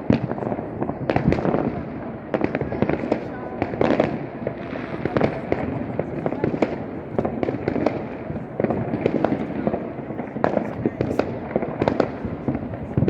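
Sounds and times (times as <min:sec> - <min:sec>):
fireworks and firecrackers banging: 0:00.0 - 0:13.0.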